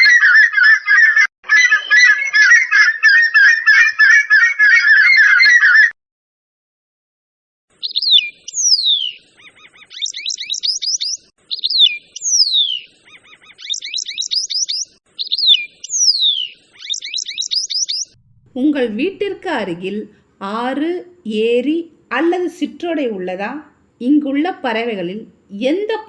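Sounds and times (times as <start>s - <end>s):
geese honking: 0.0s - 5.9s
bird singing with whistle and trill: 7.8s - 18.2s.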